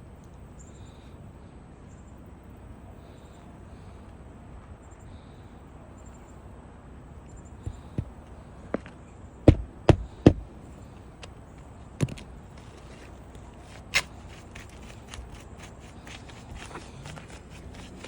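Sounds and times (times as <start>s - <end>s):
sharp knocks on a shingle roof: 7.6s - 10.6s, 12.0s - 12.3s.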